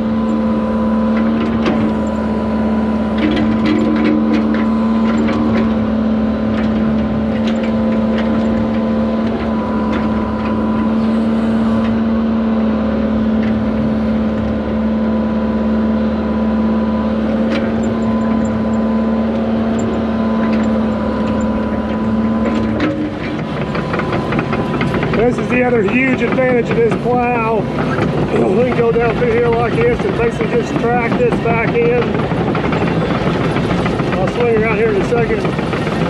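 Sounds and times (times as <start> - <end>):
excavator diesel engine running: 0.0 - 36.0
clicks and clanks: 3.2 - 5.7, 6.5 - 10.6, 19.3 - 36.0.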